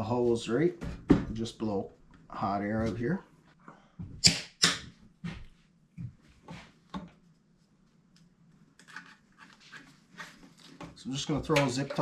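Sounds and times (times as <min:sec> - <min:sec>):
light scuffing: 0:05.2 - 0:06.8
faint knocks and rustles of handling: 0:05.2 - 0:12.0.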